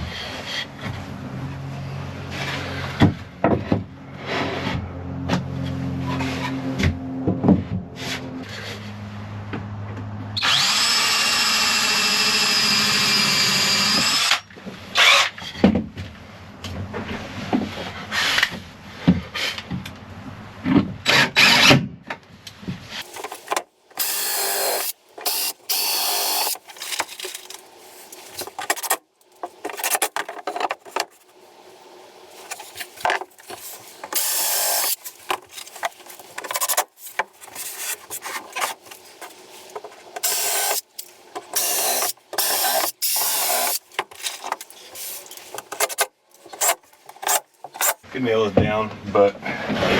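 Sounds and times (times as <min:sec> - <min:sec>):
power drill driving screws: 0:10.4 - 0:14.4, 0:21.1 - 0:21.8, 0:23.1 - 0:27.3, 0:33.6 - 0:35.8, 0:40.2 - 0:48.0.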